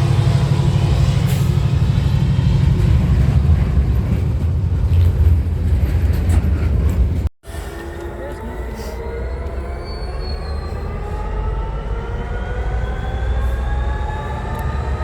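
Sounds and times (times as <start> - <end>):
train rumbling by: 0.0 - 15.0.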